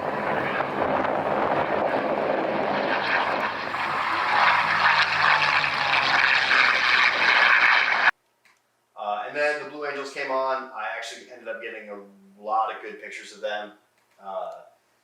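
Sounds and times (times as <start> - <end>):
propeller plane engine droning: 0.0 - 8.1
air whistling: 2.8 - 8.1.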